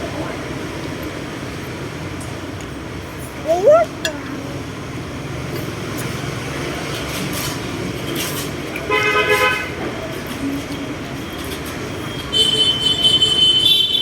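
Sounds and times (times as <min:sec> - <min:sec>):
traffic noise: 0:00.0 - 0:14.0
vehicle horn: 0:08.9 - 0:09.8, 0:12.3 - 0:14.0.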